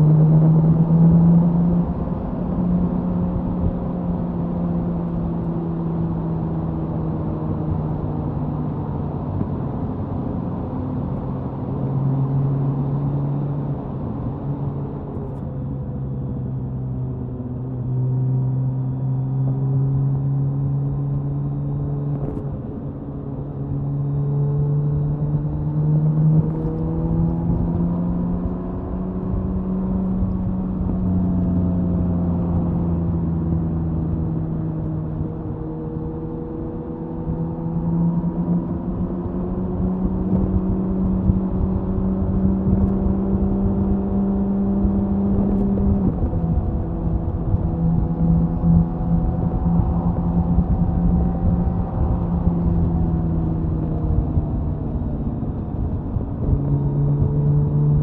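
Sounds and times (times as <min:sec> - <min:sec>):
motorcycle engine cruising: 0:23.8 - 0:58.0.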